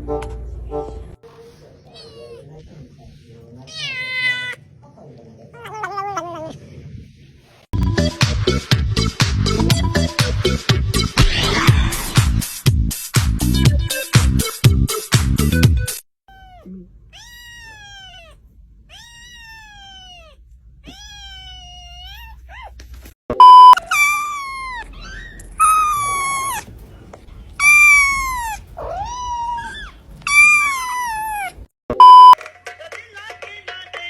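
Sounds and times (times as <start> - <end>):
cat meowing: 3.7 - 4.6, 16.3 - 22.8, 23.7 - 26.7, 27.6 - 31.7
electronic beep: 23.4 - 23.8, 32.0 - 32.4.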